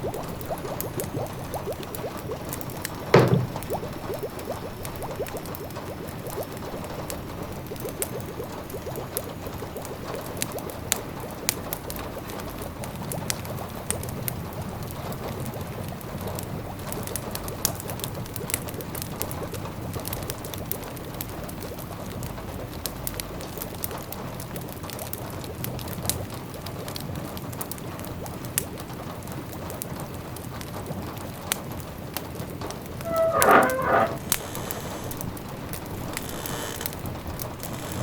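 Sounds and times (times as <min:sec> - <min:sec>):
rain pattering: 0:34.2 - 0:38.0.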